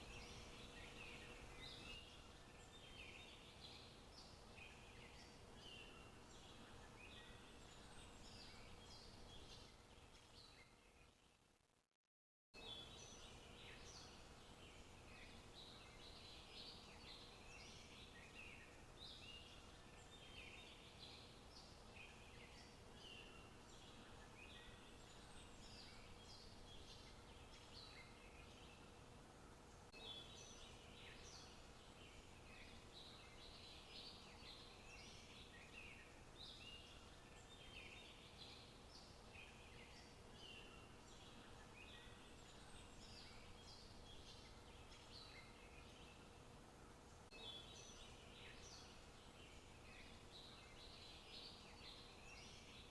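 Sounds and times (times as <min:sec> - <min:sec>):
faint birds chirping: 0:00.0 - 0:11.8, 0:12.6 - 0:52.9
low steady background hiss: 0:00.0 - 0:11.9, 0:12.6 - 0:52.9.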